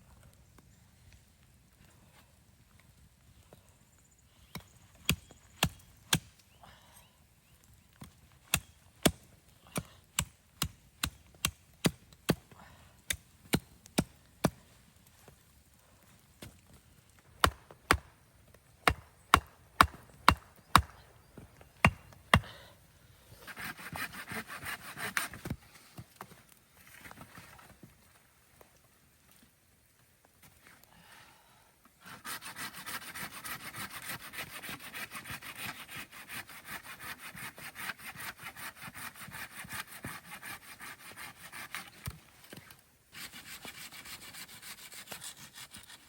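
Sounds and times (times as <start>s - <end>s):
firewood being chopped: 4.5s - 6.4s, 7.9s - 14.7s, 16.4s - 22.6s
rough rasping scrape: 23.4s - 25.5s, 43.1s - 46.0s.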